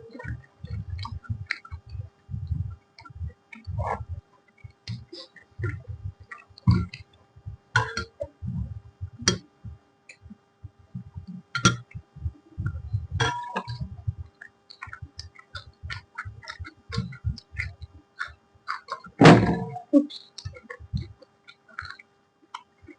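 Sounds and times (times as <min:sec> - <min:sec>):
person chewing: 0:13.2 - 0:19.2, 0:20.1 - 0:22.9.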